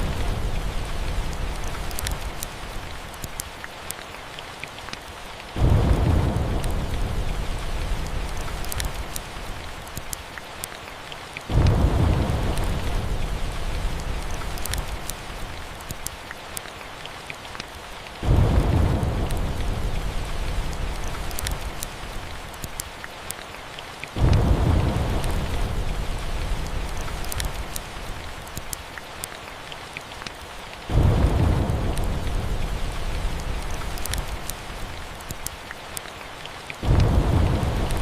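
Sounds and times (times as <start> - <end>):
steady rain: 0.0 - 38.0
thunder rolling: 5.6 - 8.9, 11.5 - 14.5, 18.2 - 21.2, 24.2 - 27.5, 30.9 - 34.4, 36.8 - 38.0.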